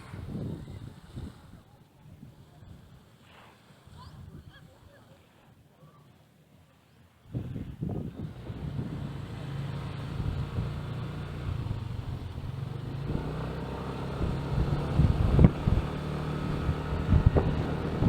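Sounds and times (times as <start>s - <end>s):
wind hitting microphone: 0.0s - 3.0s, 7.3s - 18.0s
small motorcycle engine running: 8.1s - 18.0s.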